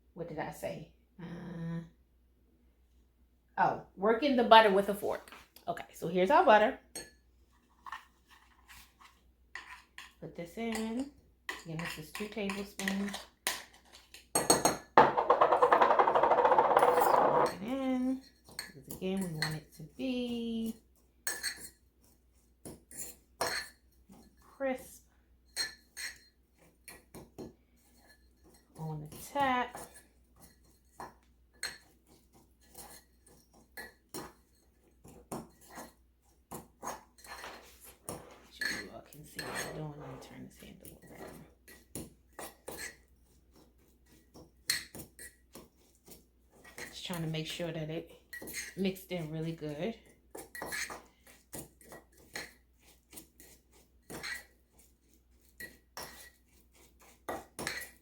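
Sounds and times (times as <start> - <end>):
fork scraping and clinking on bowl: 7.8 - 14.7, 16.8 - 19.8, 20.7 - 24.6, 25.4 - 58.0.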